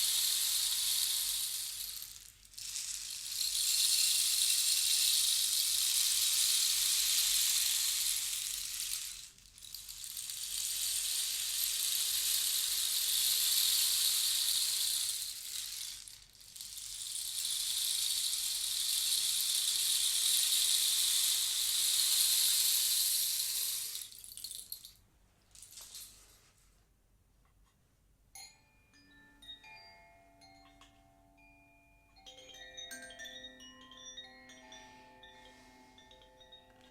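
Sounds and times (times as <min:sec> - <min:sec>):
rattle percussion swishing: 0:00.0 - 0:25.0, 0:25.6 - 0:26.5.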